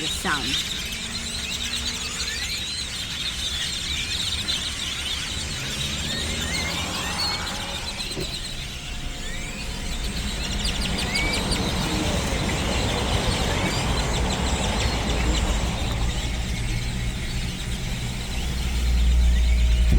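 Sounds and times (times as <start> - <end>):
flock of birds chirping: 0.0 - 19.9
low rumble: 6.4 - 19.9.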